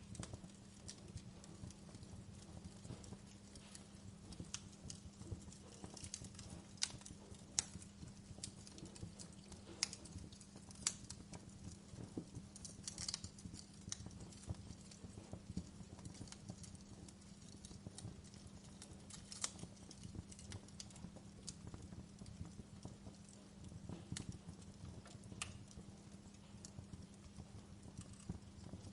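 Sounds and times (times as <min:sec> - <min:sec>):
wood fire crackling: 0:00.0 - 0:28.9.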